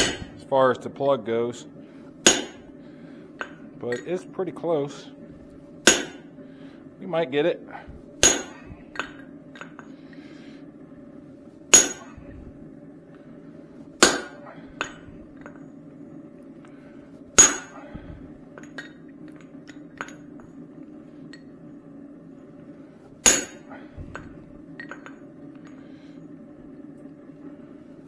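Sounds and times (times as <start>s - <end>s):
hammer striking hot steel on anvil: 0.0s - 0.5s, 2.2s - 2.7s, 5.8s - 6.4s, 8.2s - 9.9s, 11.7s - 12.3s, 14.0s - 15.6s, 17.4s - 18.0s, 23.2s - 25.2s
steady low hum: 0.0s - 28.0s
small metal clinks: 17.4s - 17.9s.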